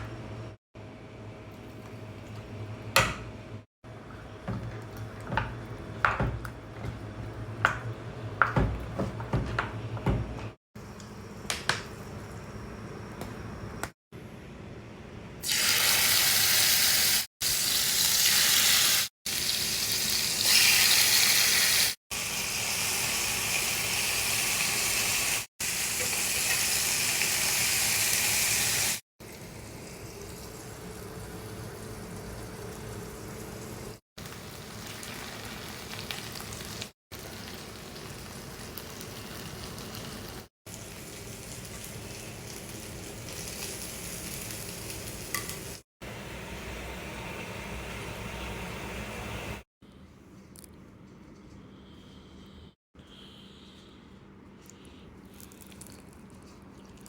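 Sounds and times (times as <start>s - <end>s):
chicken sizzling in hot oil: 15.4s - 33.1s, 33.7s - 45.8s.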